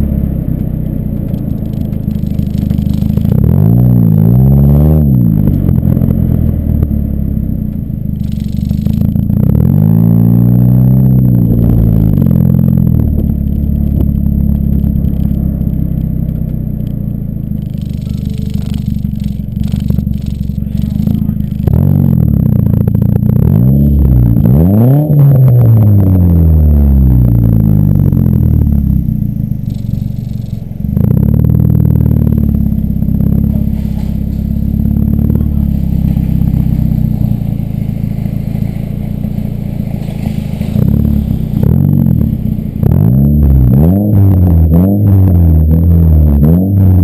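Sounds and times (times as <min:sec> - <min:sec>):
car engine revving while driving: 0:00.0 - 0:47.0.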